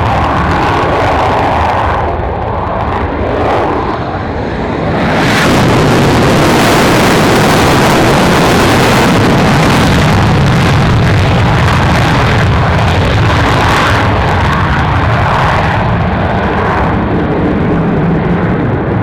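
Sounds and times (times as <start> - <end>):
military aircraft engine roar: 0.0 - 19.0.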